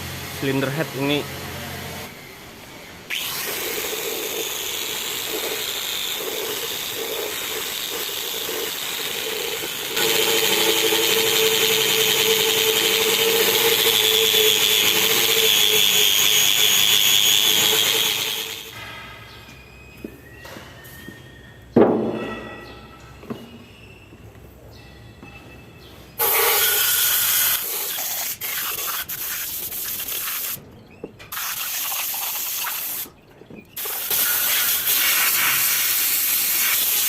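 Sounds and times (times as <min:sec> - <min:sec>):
handheld power tool running: 0:03.1 - 0:18.8, 0:26.2 - 0:29.4, 0:33.8 - 0:37.0.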